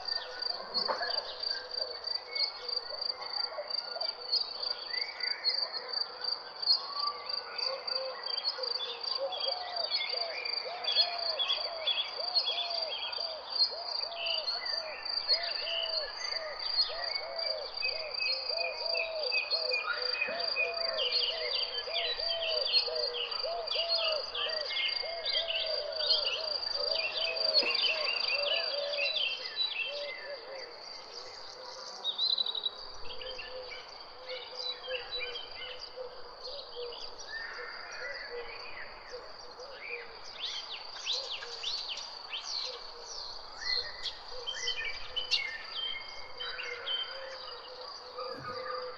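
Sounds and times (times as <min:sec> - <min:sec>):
low arching bird calls: 0:14.0 - 0:48.9
birds chirping: 0:21.4 - 0:34.0.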